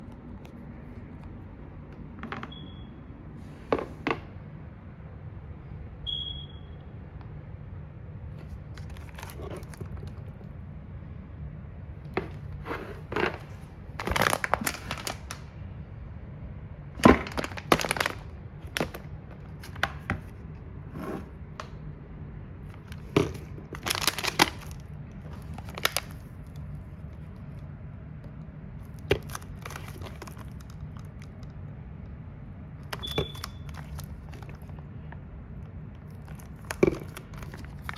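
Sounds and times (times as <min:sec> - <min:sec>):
steady low hum: 0:00.0 - 0:37.9
packaging knocks and crinkling: 0:08.4 - 0:10.5, 0:12.1 - 0:15.4, 0:17.0 - 0:21.8, 0:22.7 - 0:27.3, 0:28.8 - 0:31.5, 0:32.8 - 0:37.9.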